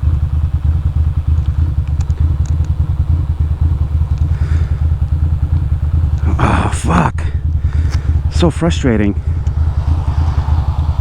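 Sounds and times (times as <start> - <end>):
motorcycle engine idling: 0.0 - 11.0
faint ticks: 1.4 - 2.8.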